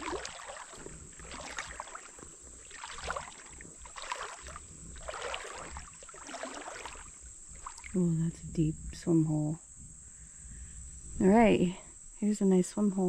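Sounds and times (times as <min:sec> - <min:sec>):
water sloshing around wading person: 0:00.0 - 0:09.2.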